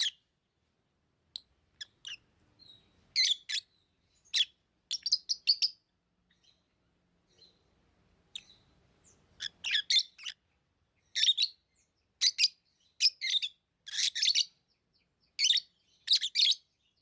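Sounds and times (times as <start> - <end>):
lovebirds chirping: 0.0 - 17.0.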